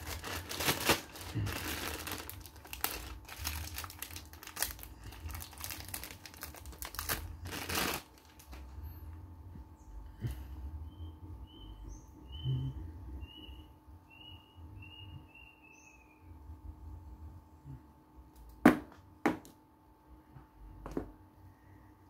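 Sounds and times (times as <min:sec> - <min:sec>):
small bird chirping: 0:10.8 - 0:16.3.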